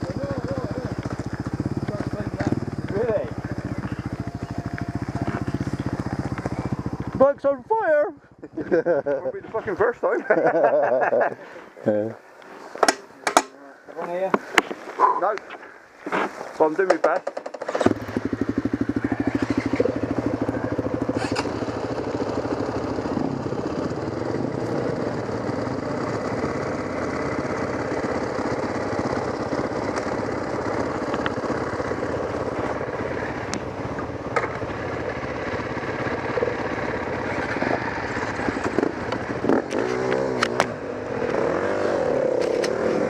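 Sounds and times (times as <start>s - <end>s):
motorcycle engine idling and revving: 0.0s - 12.2s, 15.0s - 43.0s.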